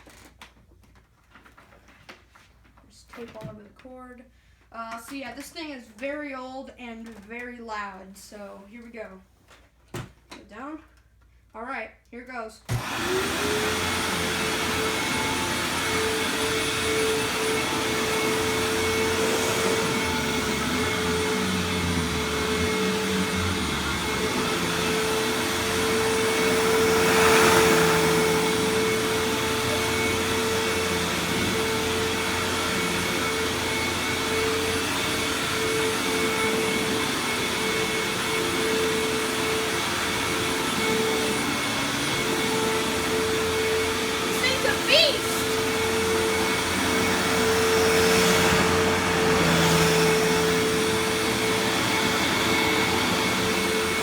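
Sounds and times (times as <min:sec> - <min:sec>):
vacuum cleaner running: 0:12.7 - 0:54.0.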